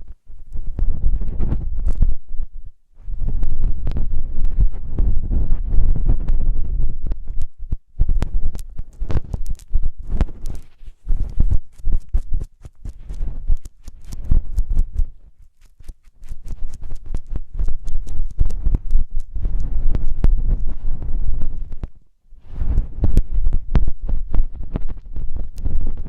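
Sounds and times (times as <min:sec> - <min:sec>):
rubbing on microphone: 0:00.0 - 0:26.0
crackling clicks: 0:07.0 - 0:22.0, 0:22.6 - 0:26.0.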